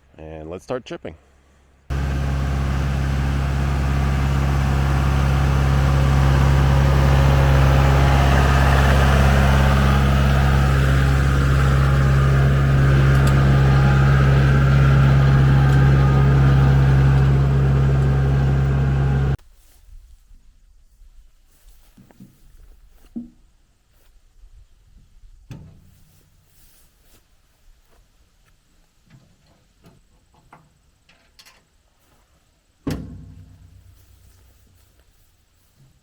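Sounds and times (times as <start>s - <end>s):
tractor diesel engine running: 1.9s - 19.4s.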